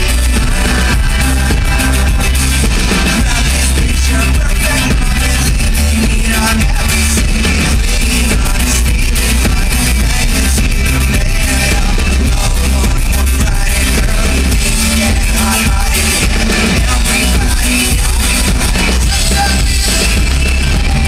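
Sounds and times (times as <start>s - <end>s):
heavy bass: 0.0s - 21.0s
live rock band playing: 0.0s - 21.0s.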